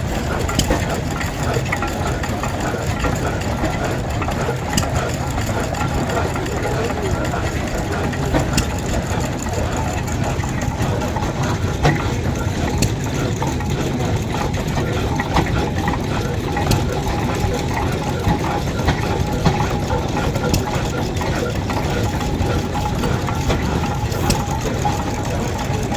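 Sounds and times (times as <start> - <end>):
sharp clicks and knocks: 0.0 - 25.9
vintage engine running: 0.0 - 25.9.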